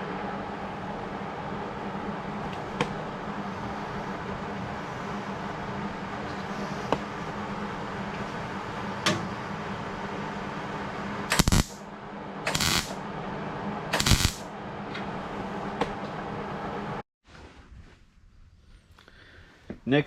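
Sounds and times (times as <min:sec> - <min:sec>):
steady hum: 0:00.0 - 0:17.0
crackling welding bursts: 0:11.3 - 0:11.8, 0:12.5 - 0:13.0, 0:14.0 - 0:14.4.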